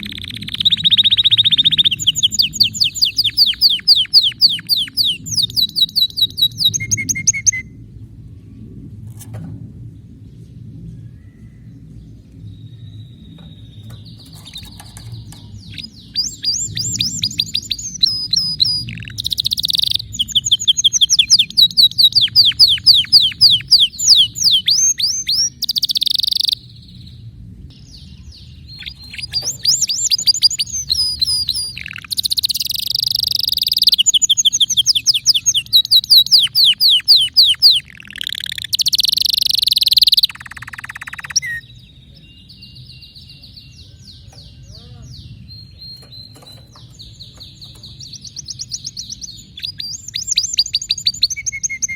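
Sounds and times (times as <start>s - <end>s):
canary singing trills: 0.0s - 7.8s, 12.1s - 51.9s
faint low hum: 0.0s - 38.0s.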